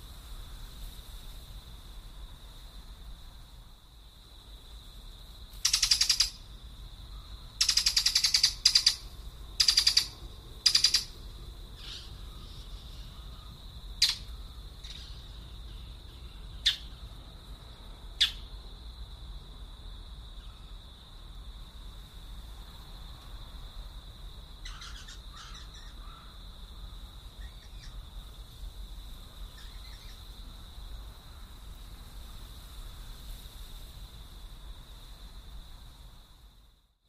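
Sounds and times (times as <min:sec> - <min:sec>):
bird rattling chatter: 0:05.6 - 0:06.4, 0:07.6 - 0:09.0, 0:09.6 - 0:11.1
sharp bird chips: 0:05.6 - 0:06.4, 0:07.6 - 0:11.1, 0:14.0 - 0:15.2.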